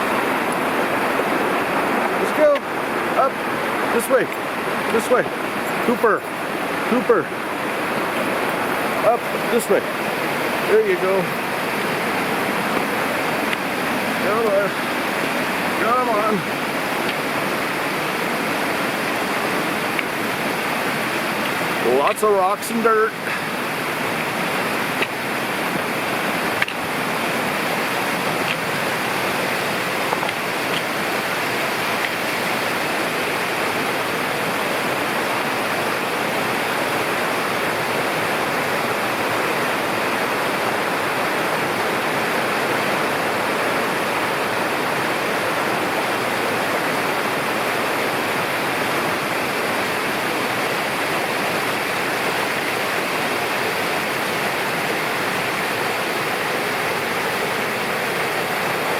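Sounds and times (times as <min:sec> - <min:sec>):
river rushing over rocks: 0:00.0 - 0:58.9.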